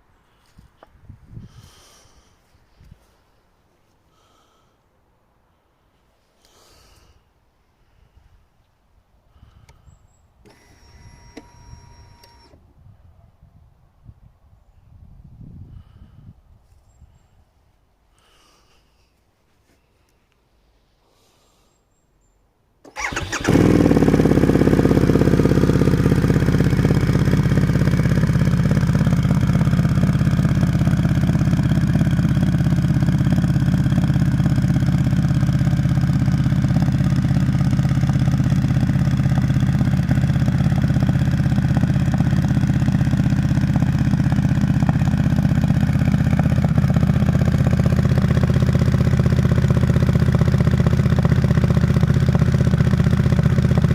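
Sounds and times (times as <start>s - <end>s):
motorcycle engine starting and idling: 9.4s - 12.6s, 22.8s - 53.9s.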